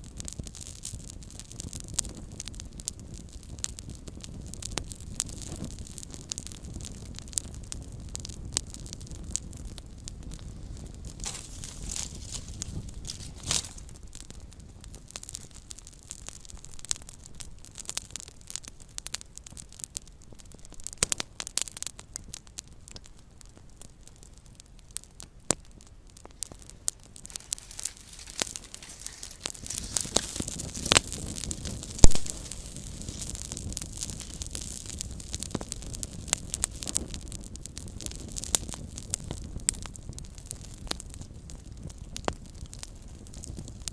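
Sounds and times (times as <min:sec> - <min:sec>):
wood fire crackling: 0:00.0 - 0:43.9.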